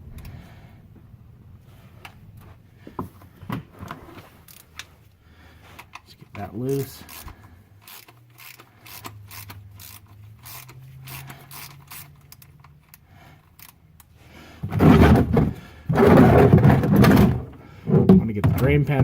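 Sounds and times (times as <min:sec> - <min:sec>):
ratchet clicking: 0:06.9 - 0:14.1.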